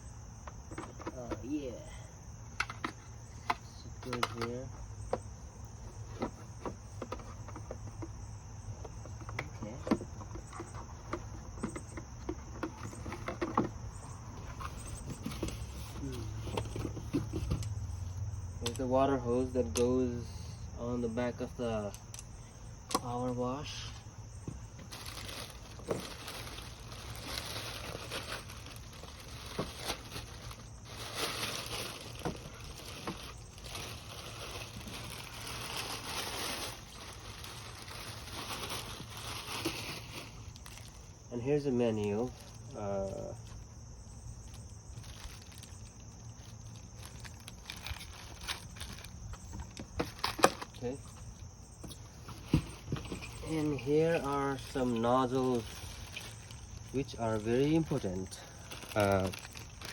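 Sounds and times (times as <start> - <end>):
packaging rustling and crinkling: 8.9 - 17.8, 23.0 - 41.3, 41.9 - 59.9.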